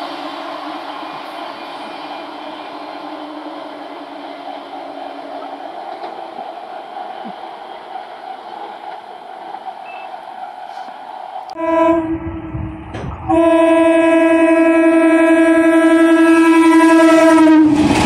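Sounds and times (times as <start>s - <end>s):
train wheels on rail: 0.0s - 11.7s, 12.4s - 13.9s, 15.4s - 18.0s
low hum: 11.6s - 14.0s.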